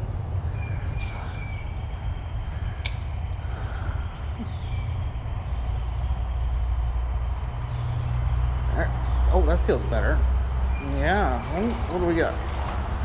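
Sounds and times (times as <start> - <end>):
road traffic rumble: 0.0 - 13.0
vehicle passing: 0.0 - 13.0
sharp click: 2.8 - 3.1.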